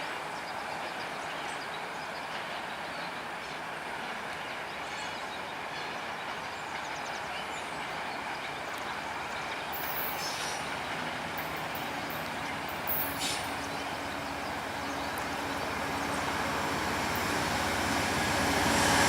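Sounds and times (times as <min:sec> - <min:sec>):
passenger train rumble: 0:00.0 - 0:19.0
train wheel squeals: 0:09.7 - 0:14.1.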